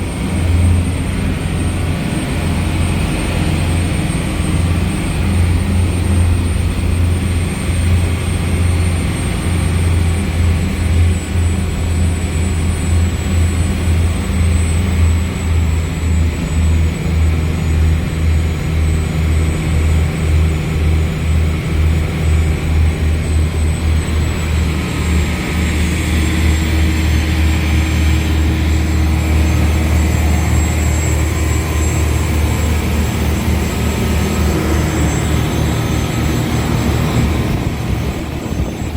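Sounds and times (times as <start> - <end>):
boat diesel engines droning: 0.0 - 38.9
thin high whine: 20.0 - 38.9.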